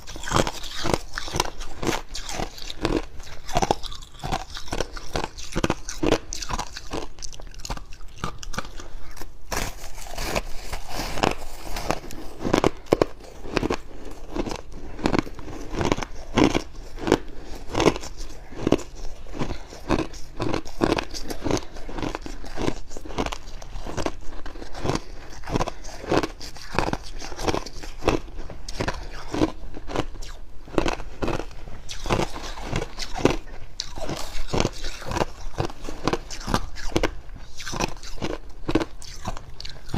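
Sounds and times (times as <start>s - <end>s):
person crunching frost: 0.0s - 39.9s.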